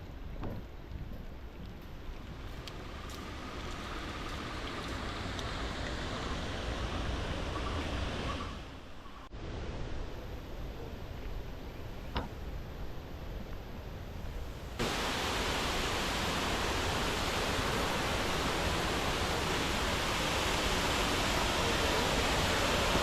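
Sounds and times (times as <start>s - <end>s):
steady rushing noise: 14.5s - 23.0s.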